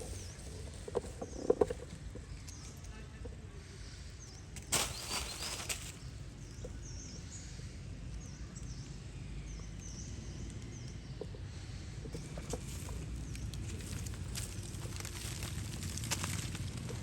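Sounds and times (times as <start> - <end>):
steady low rumble: 5.9 - 17.0.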